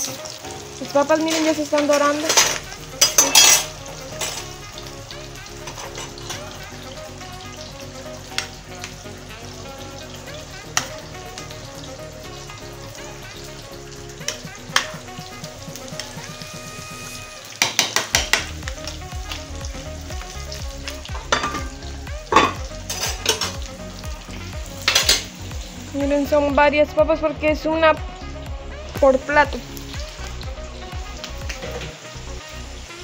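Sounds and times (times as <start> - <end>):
potatoes sizzling in oil: 0.0 - 33.0
metal spoon clinking against pots: 1.3 - 4.5, 5.6 - 6.4, 17.6 - 18.5, 21.2 - 21.7, 22.3 - 23.6, 24.9 - 25.3.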